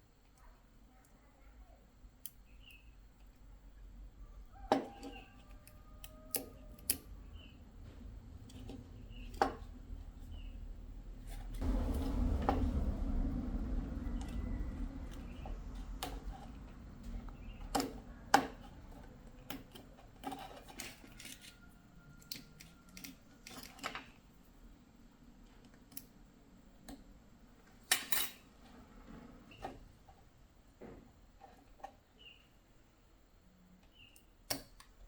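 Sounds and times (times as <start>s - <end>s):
small tools clicking and clinking: 19.0s - 21.6s.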